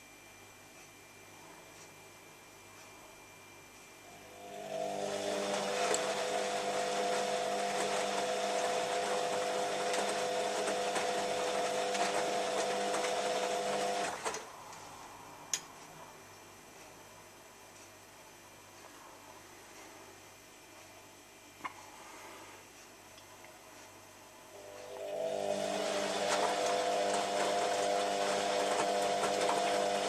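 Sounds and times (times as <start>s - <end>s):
drain pump whine: 2.0s - 15.6s, 24.4s - 30.0s.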